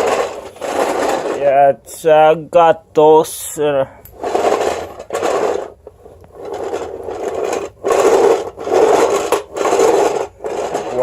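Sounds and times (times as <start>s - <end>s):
carpet sweeper brushes rasping on tile: 0.0s - 1.6s, 4.2s - 11.0s.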